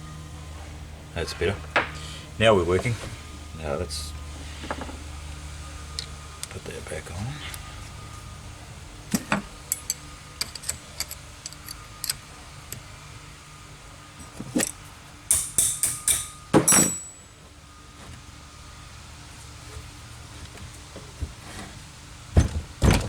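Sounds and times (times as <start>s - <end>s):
metal parts clicking and clinking: 9.1s - 12.9s, 14.2s - 17.2s
clattering metal strikes: 15.3s - 17.2s.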